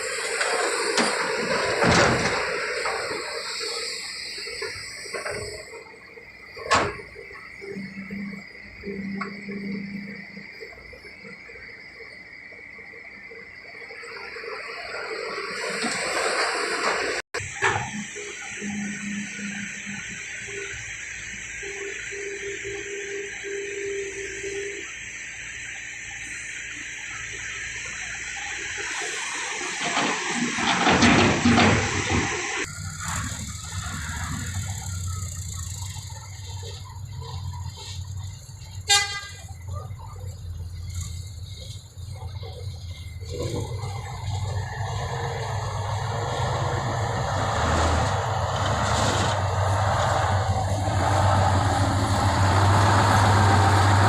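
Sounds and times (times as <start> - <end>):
excavator rushing noise: 0.0 - 10.4, 14.4 - 54.0
short horn toot: 38.8 - 39.6.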